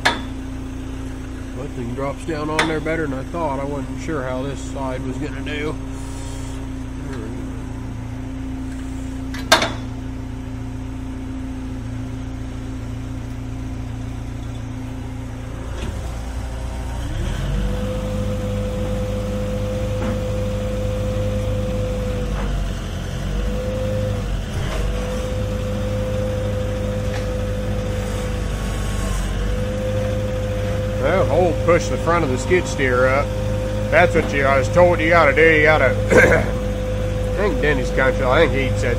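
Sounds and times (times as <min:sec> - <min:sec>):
steady whine: 0:00.0 - 0:10.0, 0:23.4 - 0:38.9
skid steer engine idling: 0:00.0 - 0:38.9.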